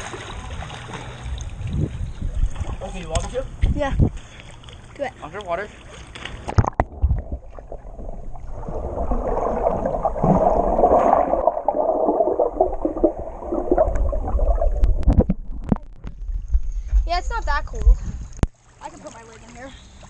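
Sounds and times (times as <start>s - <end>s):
muffled underwater water rush: 0.0s - 3.2s, 5.6s - 20.0s.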